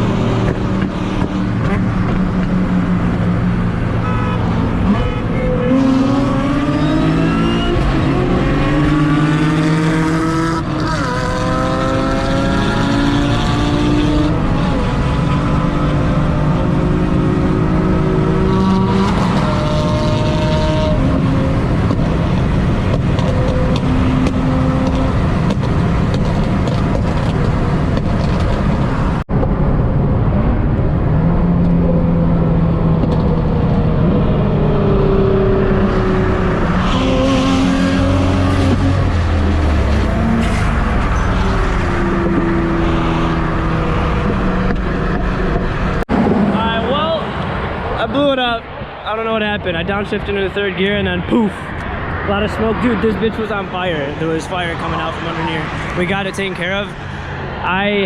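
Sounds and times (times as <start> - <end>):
car engines accelerating: 0.0 - 58.0.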